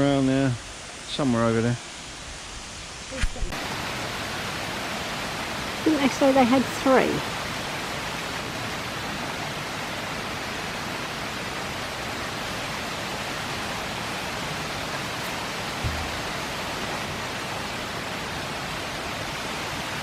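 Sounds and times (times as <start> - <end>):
rushing river water: 0.0 - 20.0
low bump: 15.8 - 16.4.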